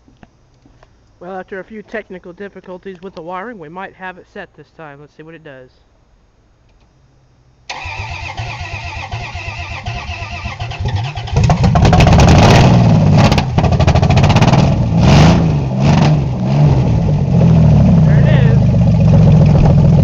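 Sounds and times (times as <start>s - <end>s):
starter cranking engine: 7.7s - 14.6s, 17.4s - 20.0s
engine revving: 7.7s - 20.0s.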